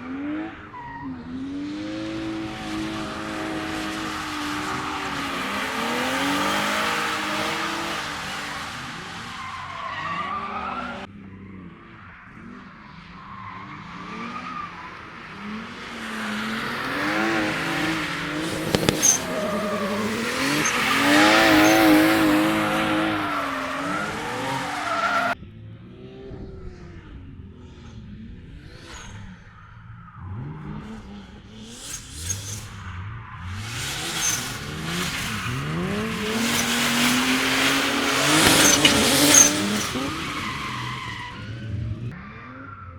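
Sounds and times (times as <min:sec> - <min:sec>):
car engines revving hard: 0:00.0 - 0:42.6
tyres squealing while sliding: 0:16.1 - 0:25.4, 0:33.7 - 0:41.8.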